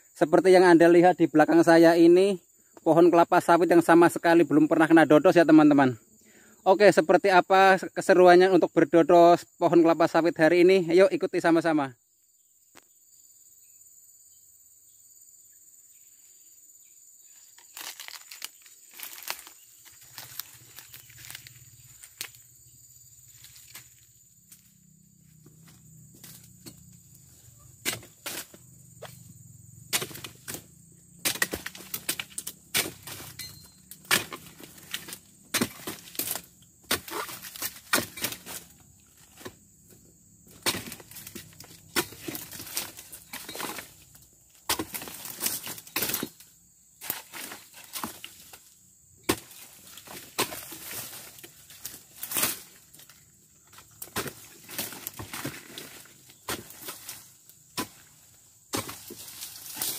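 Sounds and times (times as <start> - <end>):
blade chopping palm fronds: 17.6 - 22.4, 27.8 - 29.1, 29.9 - 39.6, 40.4 - 59.9.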